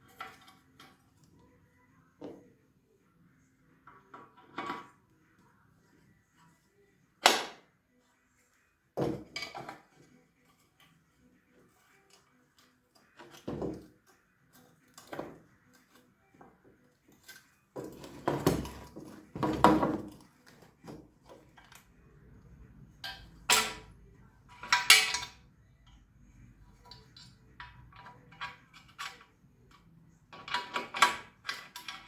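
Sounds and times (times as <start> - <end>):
small metal parts clinking: 24.5 - 25.4.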